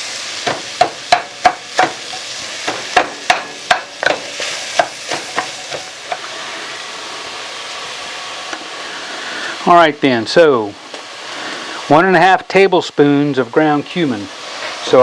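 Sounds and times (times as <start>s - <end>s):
onion sizzling in oil: 0.0s - 15.0s
utensil scraping a pan: 0.4s - 6.3s.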